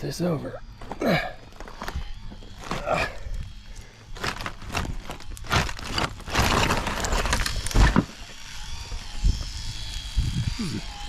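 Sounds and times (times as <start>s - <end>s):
breaking cinder blocks clattering: 5.5s - 8.2s.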